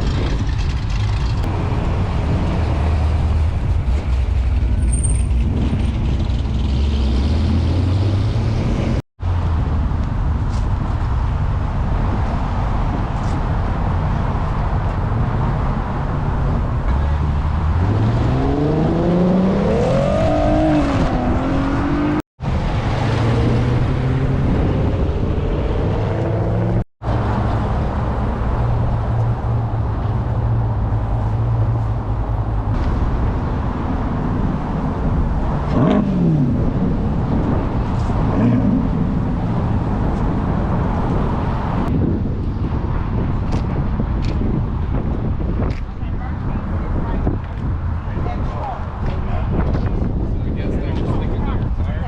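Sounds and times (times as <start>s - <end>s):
car engine revving: 5.4s - 9.0s, 16.9s - 27.6s.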